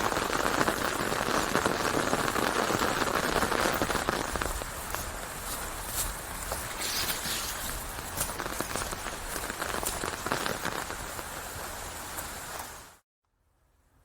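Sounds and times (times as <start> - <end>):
raindrops ticking: 0.0 - 12.9
steady rain hiss: 0.0 - 13.0.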